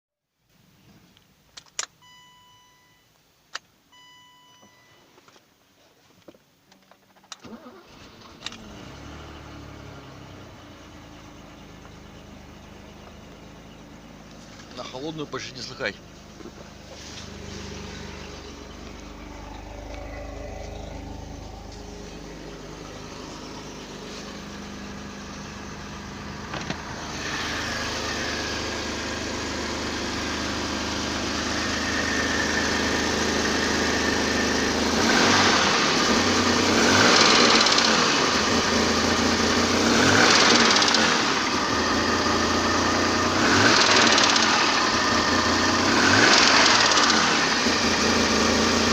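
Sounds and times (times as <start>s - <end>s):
car engine idling and revving: 3.6s - 48.9s
engine knock: 43.4s - 45.0s, 46.0s - 48.9s.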